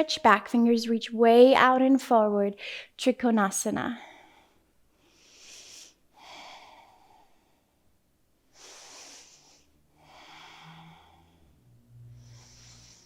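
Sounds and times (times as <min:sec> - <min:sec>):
person breathing slowly: 0:04.1 - 0:07.8, 0:08.5 - 0:13.0.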